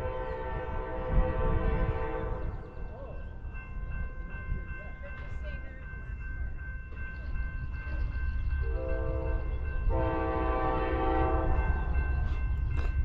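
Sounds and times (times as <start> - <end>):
train horn blasts: 0.0 - 2.6, 8.7 - 12.3
train rumbling: 0.0 - 13.0.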